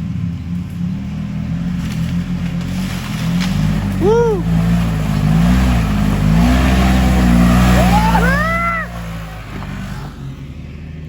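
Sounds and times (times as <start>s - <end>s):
engine revving hard: 1.8s - 10.4s
rising and falling whoop: 4.0s - 4.5s, 7.2s - 9.4s.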